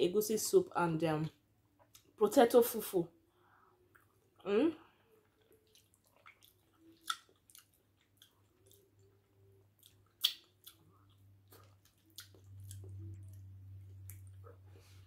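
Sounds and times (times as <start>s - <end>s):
low steady hum: 0.0s - 15.0s
chewing soft food: 3.8s - 15.0s
wet mouth clicks: 5.7s - 8.9s, 9.8s - 11.0s.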